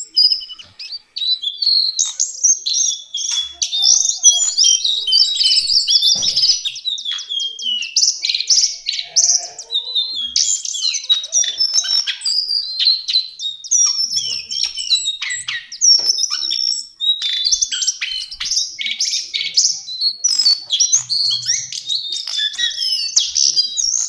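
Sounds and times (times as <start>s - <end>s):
bird singing chirps and trills: 0.0s - 24.0s.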